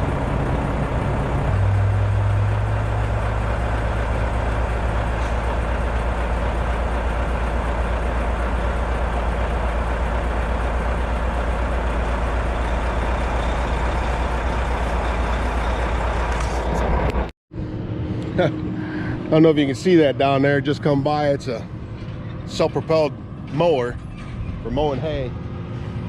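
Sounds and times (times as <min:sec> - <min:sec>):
diesel truck engine idling: 0:00.0 - 0:17.3.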